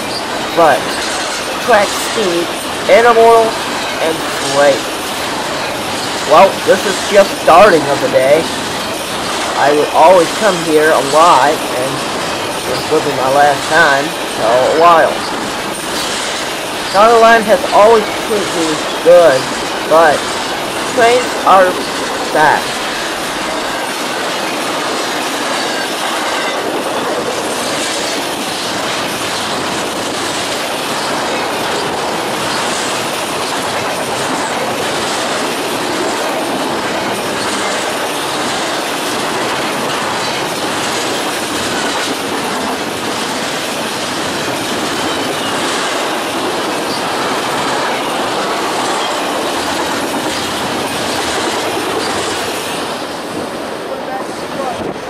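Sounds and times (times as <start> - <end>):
freight train passing: 0.0 - 55.0.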